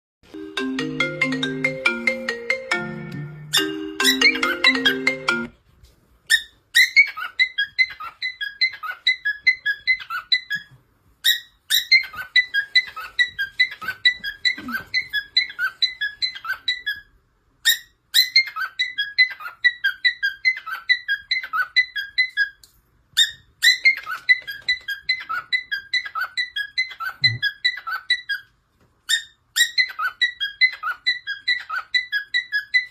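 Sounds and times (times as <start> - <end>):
small bird chirping rapidly: 6.3 - 28.5.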